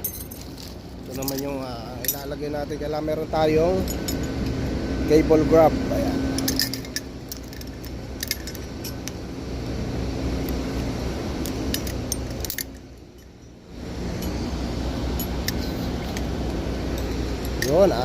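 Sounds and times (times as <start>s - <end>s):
metal hardware clinking: 0.0s - 2.5s, 6.3s - 9.2s, 11.7s - 14.5s, 15.1s - 18.0s
low background rumble: 0.0s - 18.0s.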